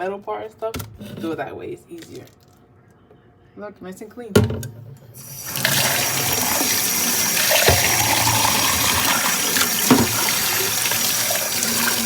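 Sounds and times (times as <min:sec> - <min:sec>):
tap water running into sink: 0:05.2 - 0:12.0
knocks in sink: 0:07.5 - 0:09.1, 0:09.8 - 0:10.4.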